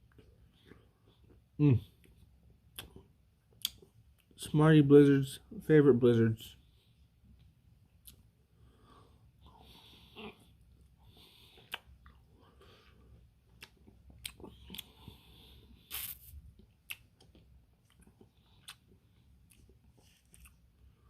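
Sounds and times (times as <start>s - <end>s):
chewing and mouth smacks: 0.0s - 4.4s, 7.3s - 8.3s, 10.1s - 15.2s, 15.9s - 20.9s.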